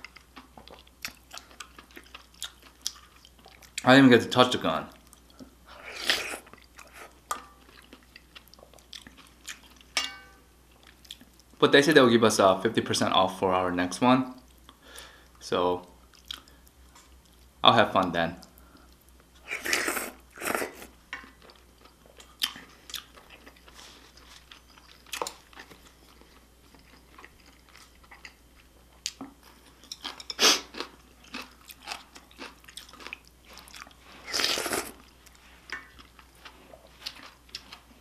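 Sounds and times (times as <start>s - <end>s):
chewing with small clicks: 0.0s - 3.9s, 6.5s - 10.0s, 10.8s - 11.6s, 16.1s - 17.5s, 21.2s - 34.0s, 35.0s - 37.9s.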